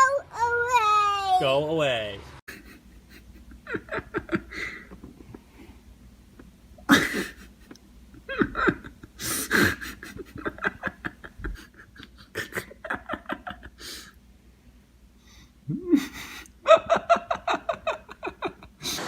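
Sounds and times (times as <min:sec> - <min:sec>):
person laughing hard: 0:06.8 - 0:14.0.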